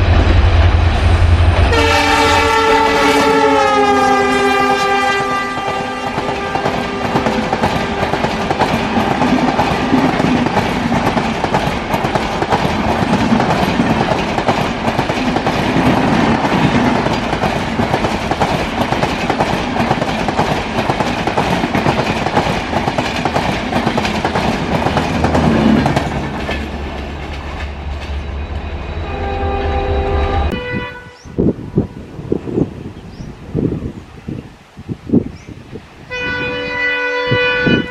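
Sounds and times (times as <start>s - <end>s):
chord-like train horn: 1.6s - 8.4s, 28.9s - 32.0s, 36.1s - 37.9s
train wheels clattering over rails: 5.2s - 28.3s.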